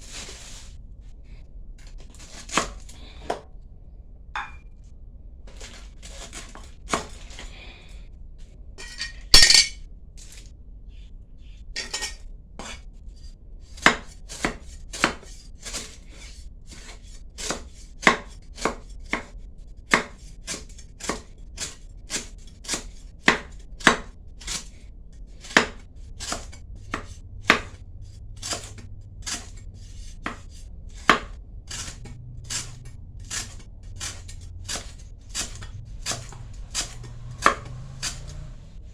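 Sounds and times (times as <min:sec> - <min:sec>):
knife chopping on cutting board: 0:17.4 - 0:19.3, 0:19.9 - 0:24.6, 0:25.4 - 0:27.8, 0:28.4 - 0:38.4.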